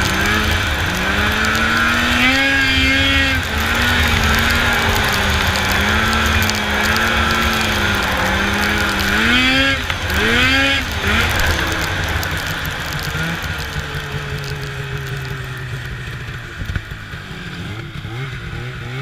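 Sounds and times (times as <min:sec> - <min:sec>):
snowmobile engine revving: 0:00.0 - 0:19.0.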